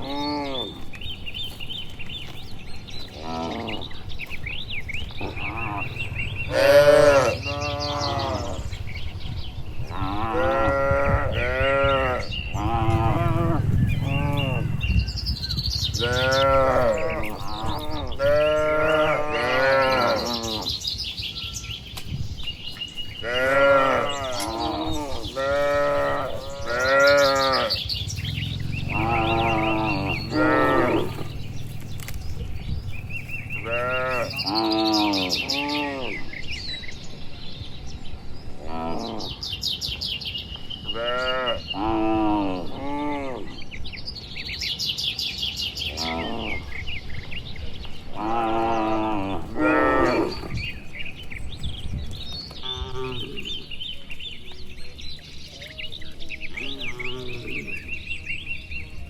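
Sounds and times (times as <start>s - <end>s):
cattle mooing: 0.0s - 0.9s, 3.2s - 4.0s, 5.2s - 8.8s, 9.9s - 15.0s, 15.9s - 20.8s, 23.2s - 32.2s, 33.2s - 36.3s, 45.9s - 46.7s, 48.1s - 50.7s, 52.6s - 53.7s, 56.6s - 57.9s.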